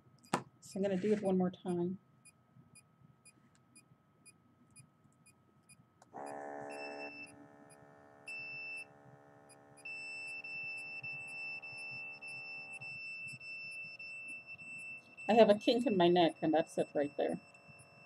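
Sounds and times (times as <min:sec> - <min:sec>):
electronic buzzing tone: 0:06.2 - 0:18.0.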